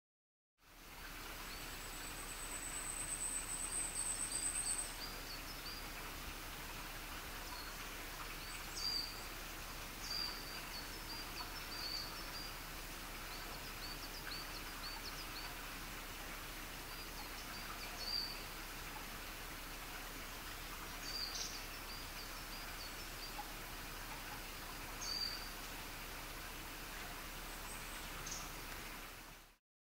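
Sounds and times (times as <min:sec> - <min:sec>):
outdoor hiss: 0:00.6 - 0:29.6
small birds chirping: 0:01.4 - 0:05.9, 0:07.4 - 0:15.6, 0:16.8 - 0:18.6, 0:20.8 - 0:25.6, 0:27.4 - 0:28.6.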